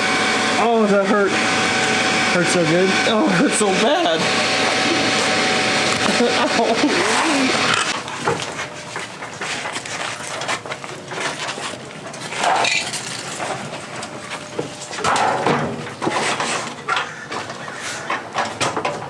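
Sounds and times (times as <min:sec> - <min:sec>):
metal parts knocking and clattering: 0:12.2 - 0:13.9.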